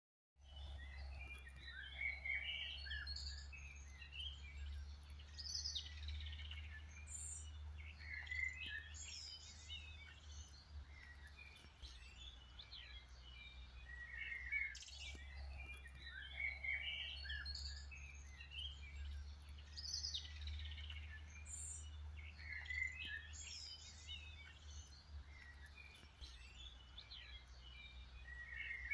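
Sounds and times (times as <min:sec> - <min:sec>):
songbirds chirping and singing: 0:00.4 - 0:28.9
steady low rumble: 0:00.6 - 0:28.9.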